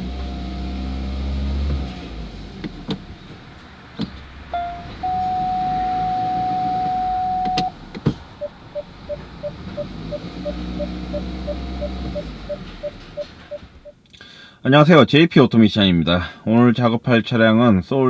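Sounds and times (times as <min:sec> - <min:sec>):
car engine running: 0:00.0 - 0:13.9
long electronic beep: 0:04.6 - 0:07.7, 0:08.4 - 0:13.9.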